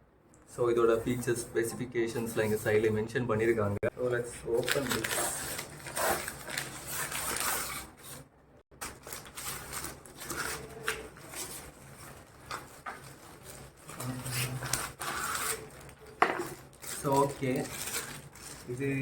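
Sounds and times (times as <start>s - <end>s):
packaging rustling and scraping: 4.0s - 19.0s.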